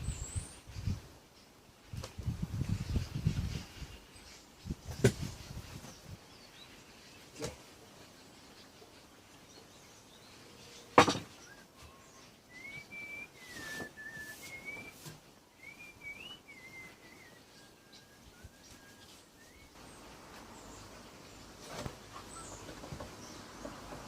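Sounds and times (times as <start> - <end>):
person whistling a slow tune: 12.5 - 15.0, 15.6 - 19.6.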